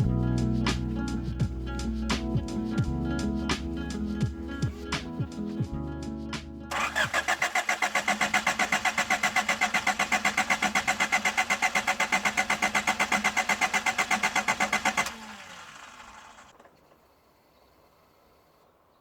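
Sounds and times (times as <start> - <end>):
starter motor cranking engine: 6.7 - 18.3.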